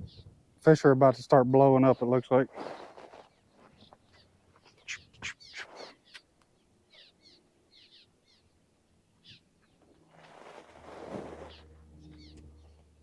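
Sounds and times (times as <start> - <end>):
faint bird chirps: 3.3 - 8.6, 9.2 - 9.8, 11.4 - 12.9.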